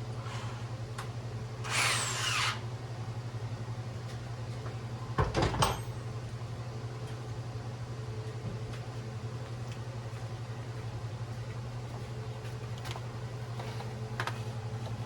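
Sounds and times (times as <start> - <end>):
low steady hum: 0.0 - 15.0
power drill whining: 1.6 - 2.6.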